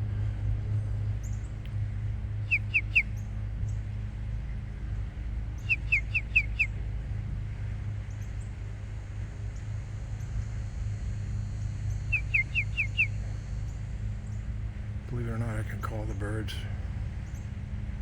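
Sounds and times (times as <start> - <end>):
small bird chirping: 2.4 - 3.2, 5.6 - 6.7, 11.9 - 13.2.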